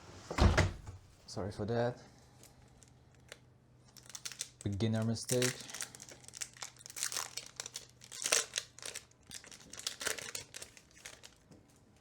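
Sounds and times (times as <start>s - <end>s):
foil wrapper crinkling and tearing: 2.7s - 11.5s.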